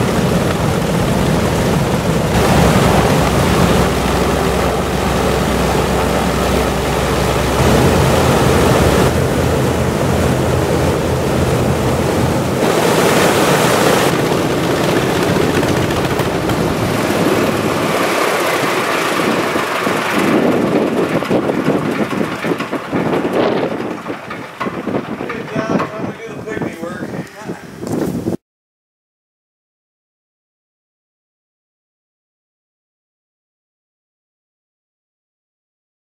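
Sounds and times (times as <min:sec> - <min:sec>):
radial aircraft engines droning: 0:00.0 - 0:27.4
propeller blast rushing: 0:00.0 - 0:28.3
wind on microphone: 0:00.0 - 0:28.4.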